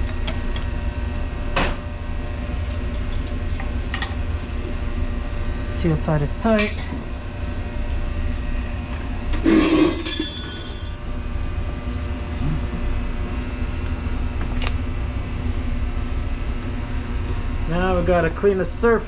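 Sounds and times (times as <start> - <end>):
machinery hum: 0.0 - 19.0.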